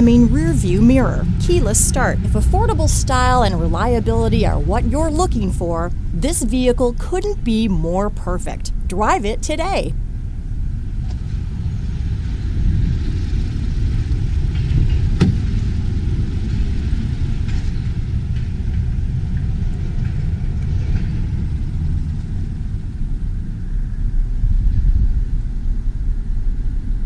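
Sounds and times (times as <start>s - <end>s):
low vehicle rumble: 0.0s - 27.0s.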